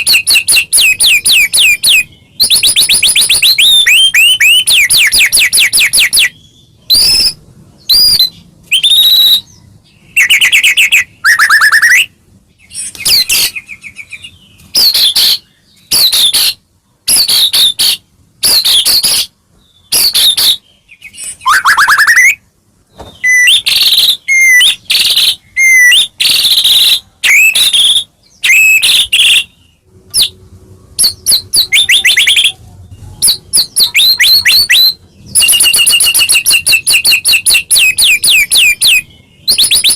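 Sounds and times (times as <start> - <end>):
bird singing whistles and trills: 0.0 - 22.4, 23.0 - 30.4, 31.0 - 39.9.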